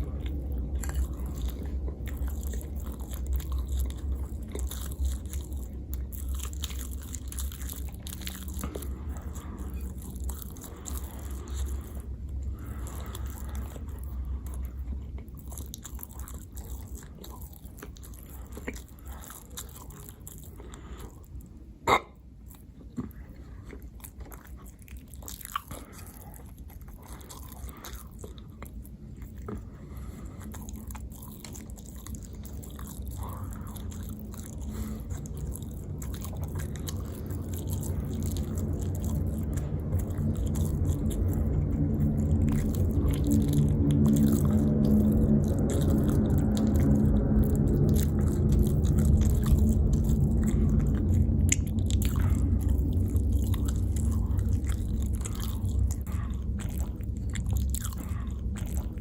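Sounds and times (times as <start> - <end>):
chewing and biting food: 0.0 - 59.0
low hum: 0.0 - 59.0.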